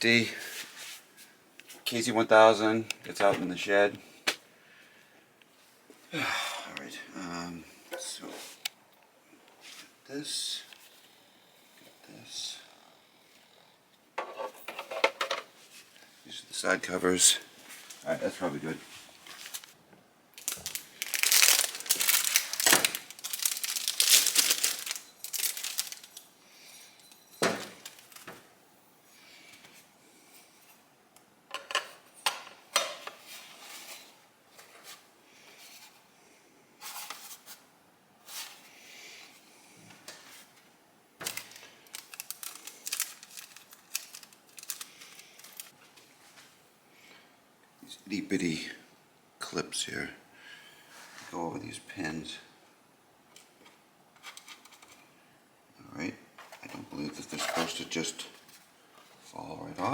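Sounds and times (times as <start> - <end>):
crinkling and rustling: 17.6 - 19.8, 20.4 - 26.3, 27.4 - 28.5, 39.9 - 46.6, 53.4 - 55.0, 56.4 - 59.9.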